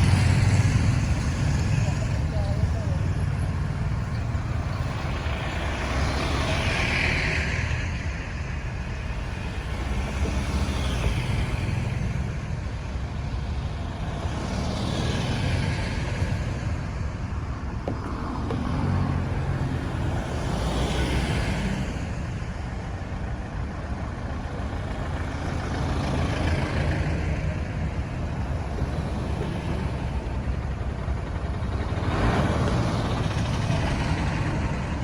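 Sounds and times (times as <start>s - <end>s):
low engine rumble: 0.0s - 35.0s
vehicles passing with tyre hiss: 0.0s - 35.0s.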